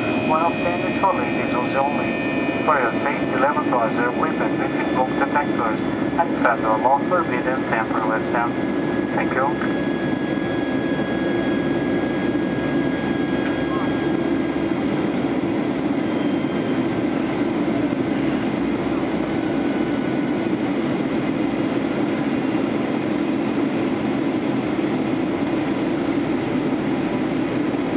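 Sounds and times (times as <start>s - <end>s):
low cabin hum: 0.0s - 12.6s
jet engines and airflow rush: 0.0s - 27.9s.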